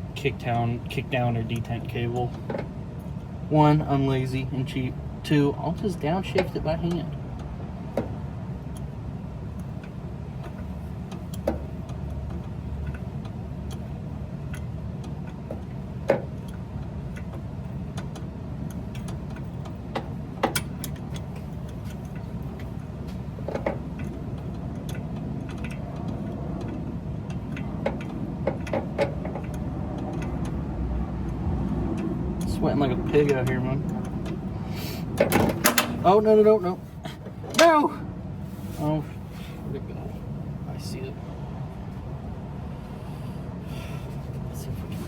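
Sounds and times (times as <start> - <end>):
steady low rumble: 0.0 - 45.0
clicks and knocks of hand work: 18.0 - 32.5.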